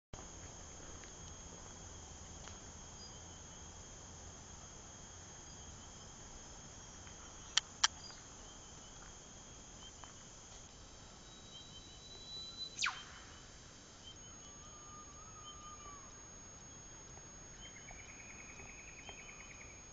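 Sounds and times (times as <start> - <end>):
high insect chorus: 0.2 - 19.9
bird whistle ending in whip-crack: 12.3 - 13.3.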